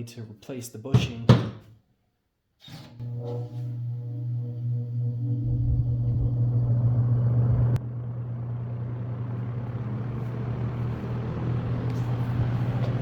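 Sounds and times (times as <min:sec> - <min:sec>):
fan motor humming: 0:03.3 - 0:13.0
air rushing from fan blades: 0:05.7 - 0:13.0.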